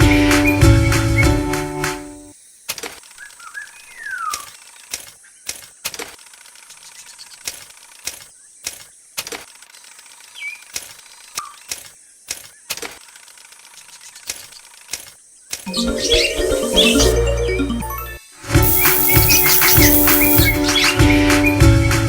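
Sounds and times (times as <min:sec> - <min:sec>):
whistled bird chirps: 0:03.2 - 0:04.6.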